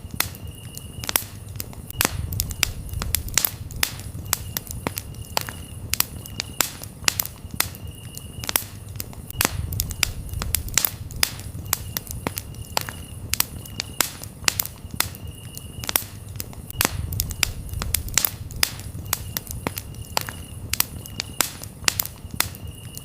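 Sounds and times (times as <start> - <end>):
campfire crackling and popping: 0.0 - 23.0
cricket chirping: 0.0 - 23.0.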